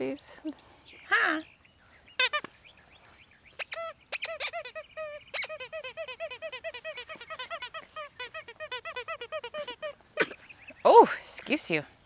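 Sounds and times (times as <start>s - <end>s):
squeaky dog toy squeaking: 2.2s - 2.5s, 3.6s - 10.0s.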